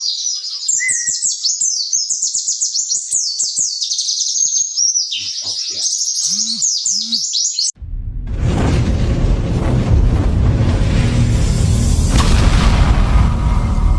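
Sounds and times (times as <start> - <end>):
high-pitched bird twittering: 0.0 - 7.8
loud rushing noise: 7.8 - 13.9.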